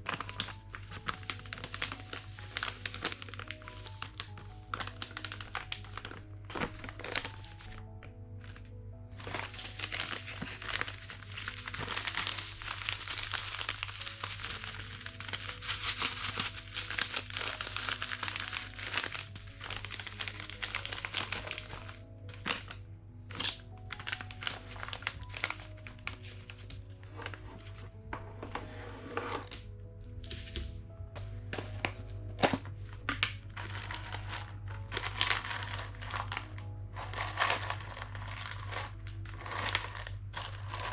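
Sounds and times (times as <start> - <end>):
packaging crinkling and rustling: 0.0 - 40.9
soft background music: 0.0 - 40.9
items being set down: 27.1 - 29.6, 30.2 - 33.3.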